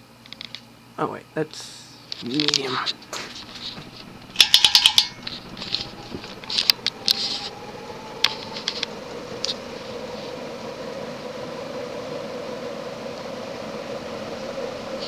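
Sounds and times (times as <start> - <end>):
fan motor hum rising: 0.8 - 15.0
fan speed switch clicking: 2.1 - 11.0
fan pull chain rattling: 2.2 - 10.6.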